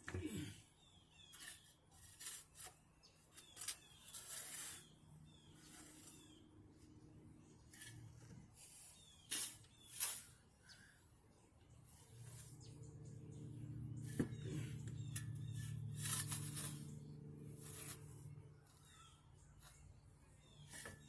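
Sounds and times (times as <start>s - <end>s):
shovel scraping dirt: 1.2s - 6.4s, 7.5s - 10.9s, 13.4s - 21.0s.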